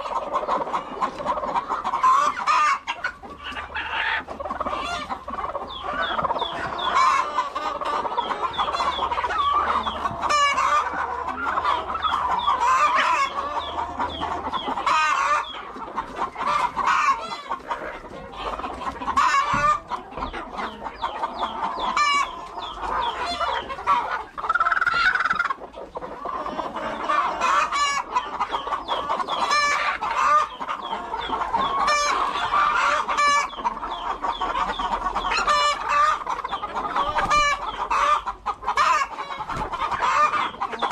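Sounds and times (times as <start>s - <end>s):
hens clucking: 0.0s - 40.9s.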